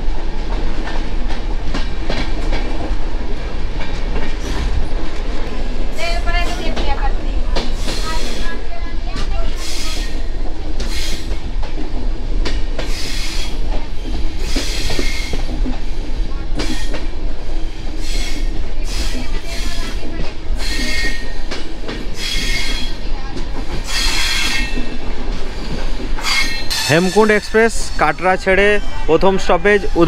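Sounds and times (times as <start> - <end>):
train wheels rumbling on rail: 0.0 - 30.0
wheels squealing on rail: 7.7 - 8.7, 9.4 - 11.5, 12.8 - 30.0.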